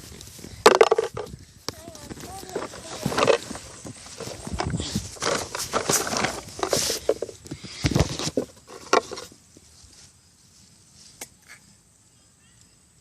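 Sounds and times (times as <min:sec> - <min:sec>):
close rustling and scraping: 0:00.0 - 0:11.8.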